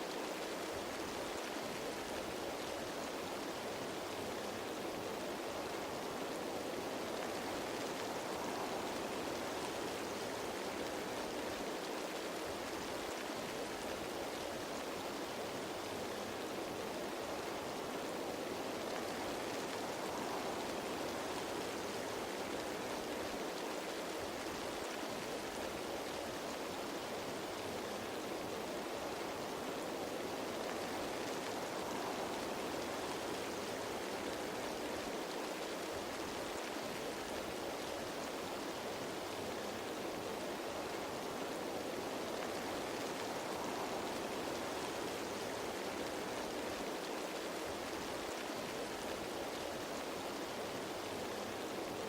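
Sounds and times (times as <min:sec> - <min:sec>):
rain falling on leaves: 0:00.0 - 0:52.0.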